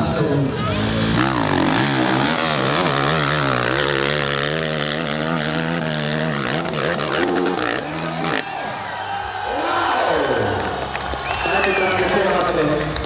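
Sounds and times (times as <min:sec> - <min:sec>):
dirt bike engine revving: 0:00.4 - 0:08.9.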